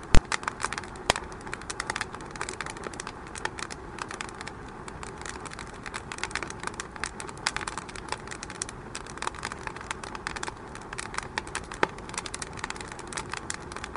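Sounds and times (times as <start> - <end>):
fire hissing: 0.0 - 13.9
wood fire crackling: 0.0 - 13.9.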